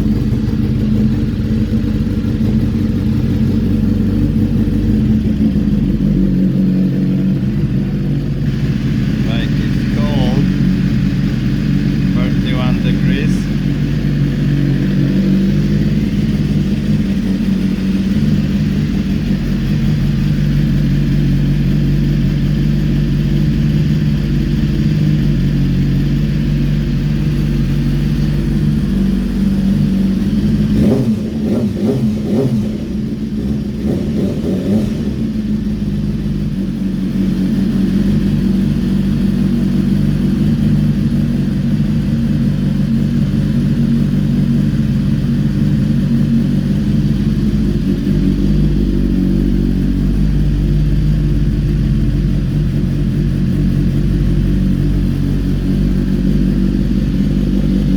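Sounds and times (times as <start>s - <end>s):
motorcycle engine idling: 0.0s - 57.9s.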